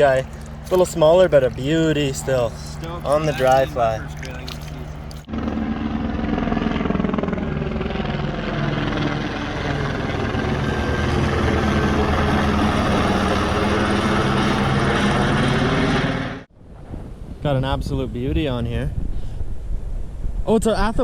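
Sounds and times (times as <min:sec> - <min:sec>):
helicopter rotor and engine: 0:00.0 - 0:16.5.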